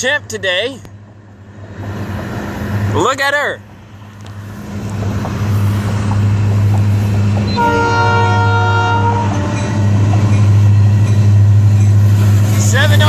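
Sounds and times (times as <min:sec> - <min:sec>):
locomotive engine drone: 0:00.0 - 0:13.0
locomotive air horn: 0:07.5 - 0:10.0.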